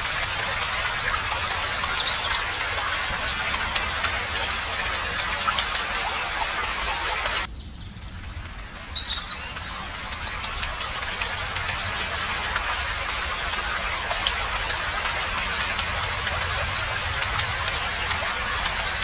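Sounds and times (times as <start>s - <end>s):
rushing hiss of ambience: 0.0s - 19.0s
bird chirping: 7.4s - 11.4s.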